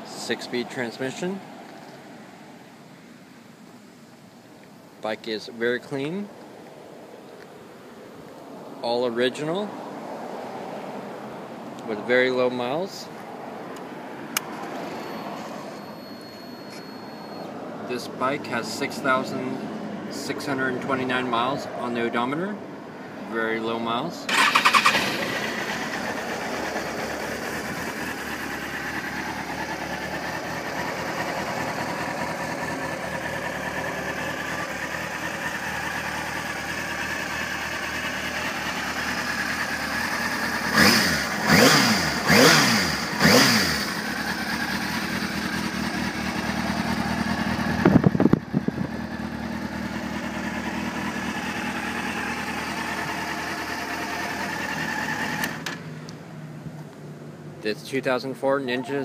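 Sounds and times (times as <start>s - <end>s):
motorcycle engine idling and revving: 24.3s - 57.6s.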